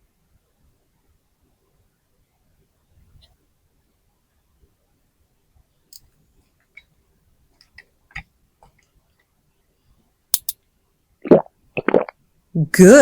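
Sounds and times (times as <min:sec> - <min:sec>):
plastic toy parts clicking: 0:10.4 - 0:10.6.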